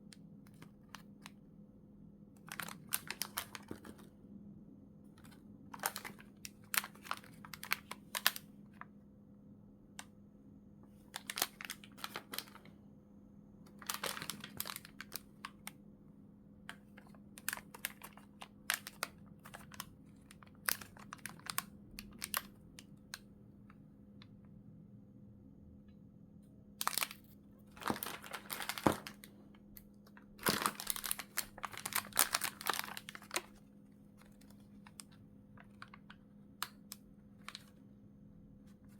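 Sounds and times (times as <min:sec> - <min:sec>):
faint steady hum: 0:00.0 - 0:38.9
plastic packaging crinkling: 0:02.4 - 0:04.1, 0:05.2 - 0:08.4, 0:11.0 - 0:12.7, 0:13.7 - 0:15.7, 0:16.7 - 0:22.6, 0:26.8 - 0:36.8, 0:37.4 - 0:37.8.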